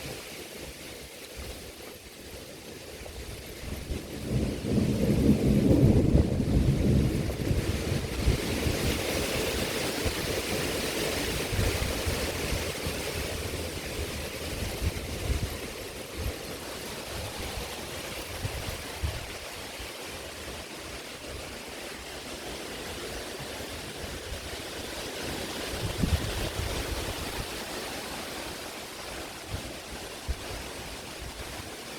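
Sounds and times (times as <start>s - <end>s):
heavy rain: 2.0s - 31.9s
thunder rumbling: 3.6s - 19.5s.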